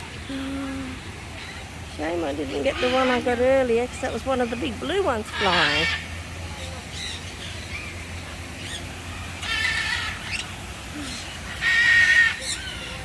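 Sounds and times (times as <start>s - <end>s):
bird squawking: 5.2s - 7.9s, 9.4s - 13.0s.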